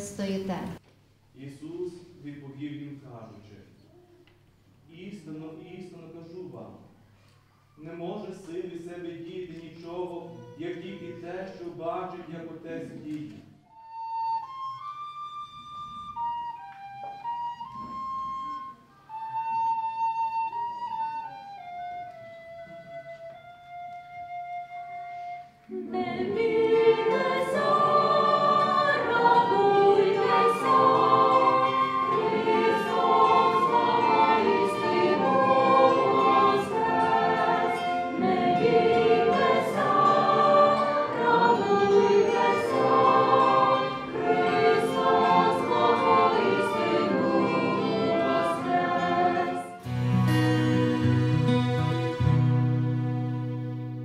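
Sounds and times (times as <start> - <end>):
choir singing chant: 25.7 - 49.8.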